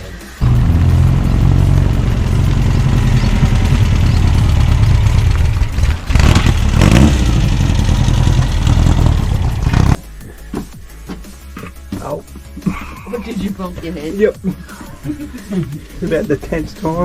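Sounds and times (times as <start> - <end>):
engine running loudly: 0.4 - 10.0.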